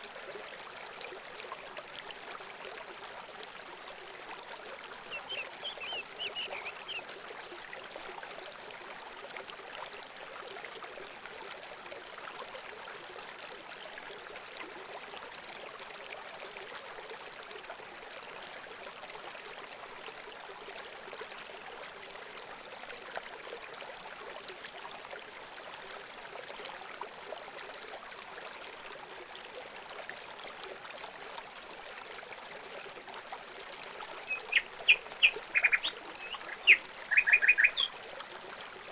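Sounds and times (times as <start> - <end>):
running water: 0.0 - 38.9
bird chirps: 5.1 - 7.0, 34.2 - 37.9.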